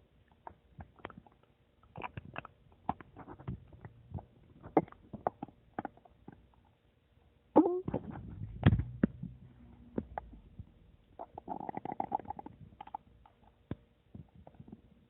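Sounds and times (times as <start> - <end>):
stomach gurgling: 0.3 - 6.7, 7.6 - 15.0.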